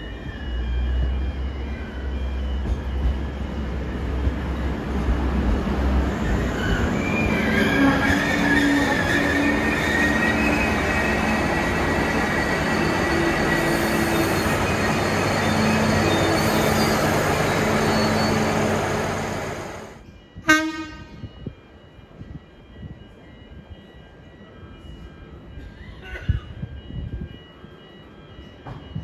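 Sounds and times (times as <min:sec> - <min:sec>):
train engine running: 0:08.4 - 0:20.0.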